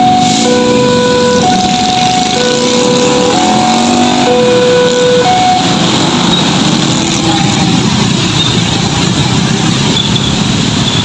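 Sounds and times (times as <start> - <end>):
two-note horn tones: 0.0 - 5.7
road traffic engines: 0.0 - 11.0.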